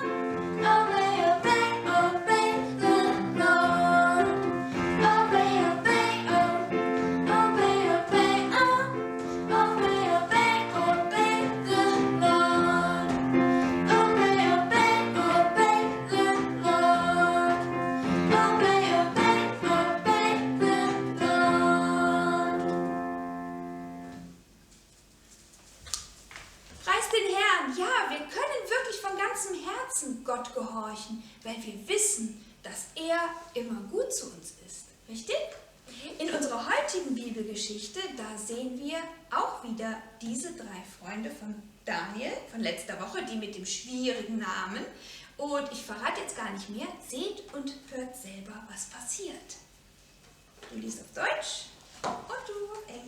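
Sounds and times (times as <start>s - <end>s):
woman singing: 0.0s - 22.8s
piano accompaniment: 0.0s - 24.5s.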